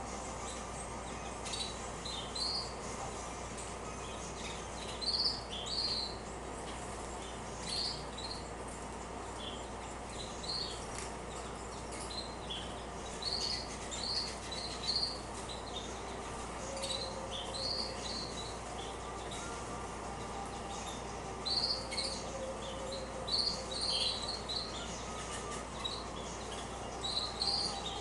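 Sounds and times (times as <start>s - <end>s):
canaries chirping: 0.0s - 28.0s
steady background hiss: 0.0s - 28.0s.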